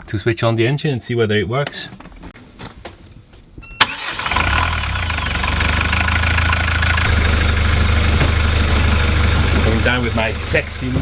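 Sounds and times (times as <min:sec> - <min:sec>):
diesel engine starting and running: 0:03.8 - 0:11.0.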